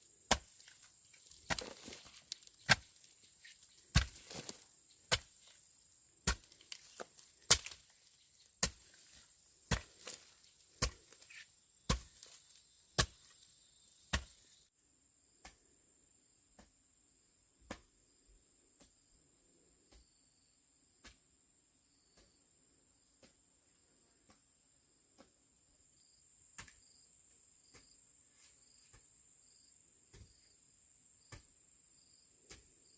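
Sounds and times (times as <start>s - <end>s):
sharp chopping strikes: 7.5s - 7.9s.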